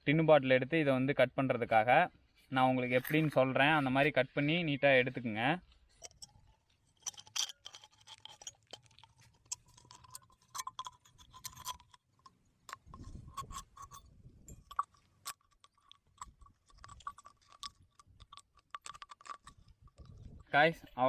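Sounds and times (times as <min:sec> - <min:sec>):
knife cutting metal can: 0:07.0 - 0:20.2.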